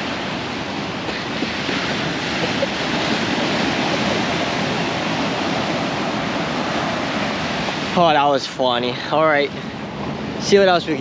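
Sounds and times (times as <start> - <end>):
ocean surf washing on shore: 0.0 - 11.0.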